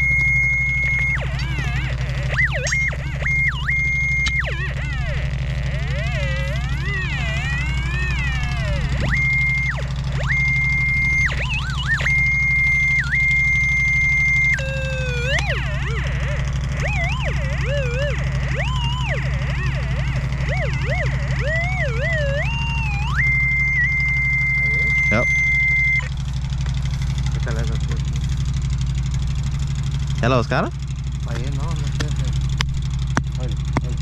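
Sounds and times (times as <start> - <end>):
metal detector high beep: 0.0 - 26.1
metal detector warbling tones: 0.0 - 28.6
steady low hum: 0.0 - 34.0.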